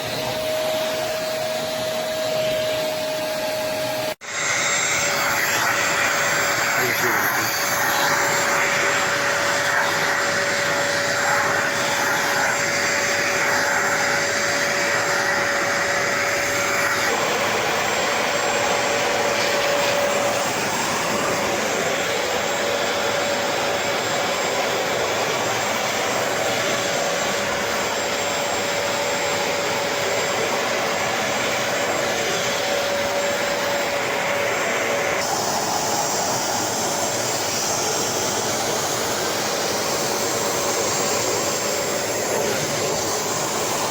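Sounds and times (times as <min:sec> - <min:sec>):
carpet cleaner motor whirring: 0:00.0 - 0:43.9.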